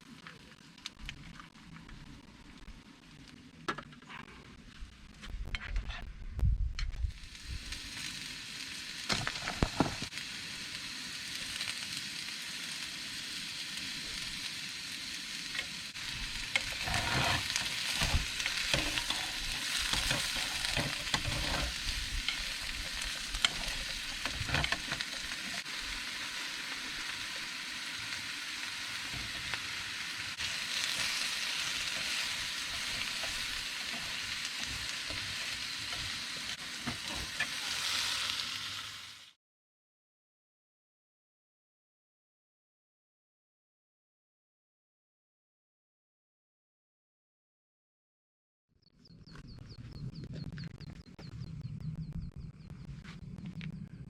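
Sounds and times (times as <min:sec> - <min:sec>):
food sizzling in a frying pan: 0:07.1 - 0:39.4
utensil clicking and scraping: 0:16.5 - 0:25.6.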